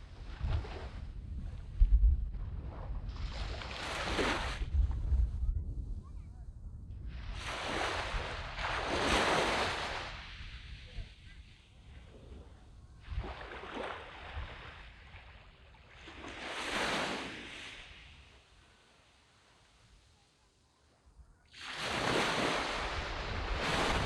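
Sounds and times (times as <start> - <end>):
small waves breaking on sand: 2.6 - 4.7, 7.1 - 20.1, 21.5 - 24.0.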